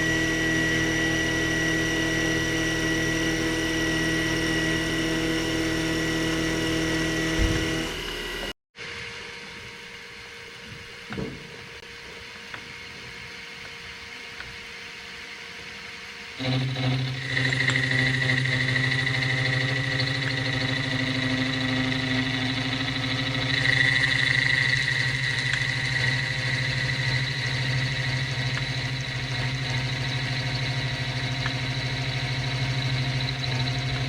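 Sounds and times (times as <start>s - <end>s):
machine tool motor whining: 0.0s - 8.6s, 16.4s - 34.0s.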